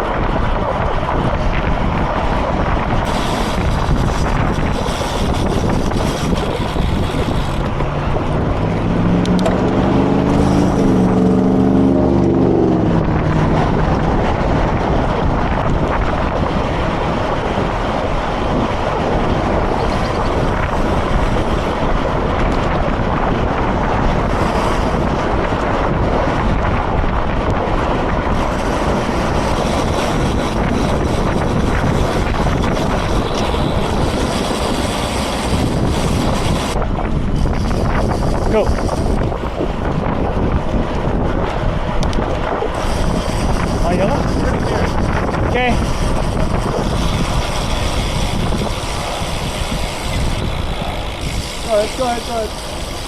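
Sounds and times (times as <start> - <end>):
wind rushing on microphone: 0.0 - 53.0
low droning note: 7.5 - 14.2.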